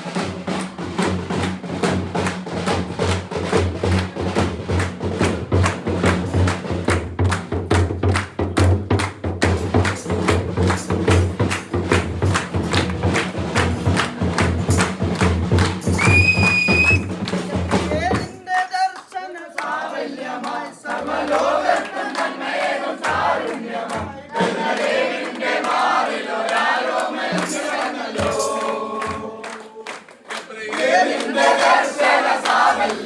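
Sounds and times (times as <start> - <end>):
carol music with fast drumbeat: 0.0 - 18.9, 20.4 - 33.0
crowd shouting and singing: 16.0 - 33.0.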